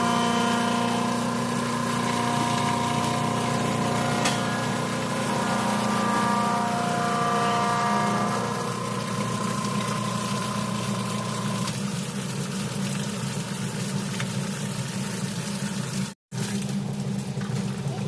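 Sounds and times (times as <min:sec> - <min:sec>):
machinery humming: 0:00.0 - 0:11.7
thin high tone: 0:00.0 - 0:11.7.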